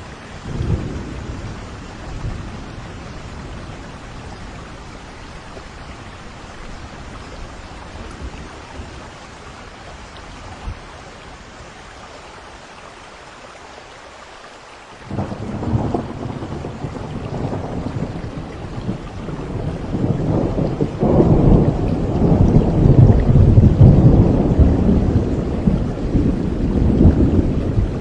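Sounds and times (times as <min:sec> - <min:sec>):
low rolling thunder: 0:00.0 - 0:05.0, 0:15.1 - 0:28.0
steady rain falling: 0:00.0 - 0:28.0
loud thunder clap: 0:15.1 - 0:28.0.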